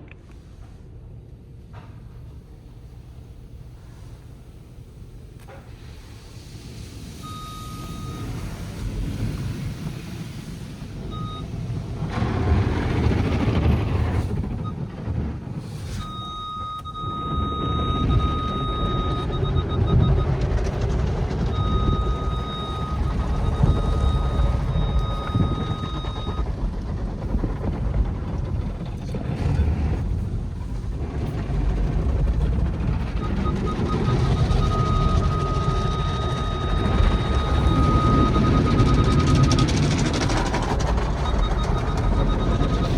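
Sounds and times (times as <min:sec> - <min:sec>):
car wash equipment rumble: 0:00.0 - 0:42.9
car wash rushing water: 0:02.7 - 0:42.9
high electronic beep: 0:07.3 - 0:08.2, 0:11.1 - 0:11.5, 0:16.0 - 0:20.4, 0:21.5 - 0:26.4, 0:33.2 - 0:40.2, 0:41.1 - 0:42.9.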